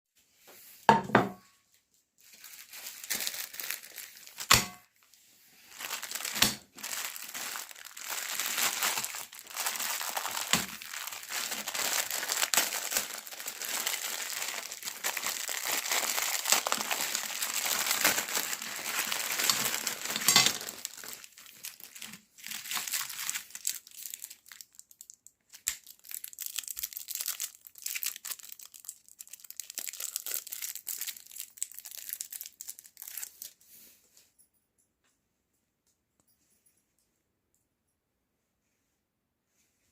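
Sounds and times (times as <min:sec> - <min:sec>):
wrappers crinkling and tearing: 0:02.2 - 0:33.6.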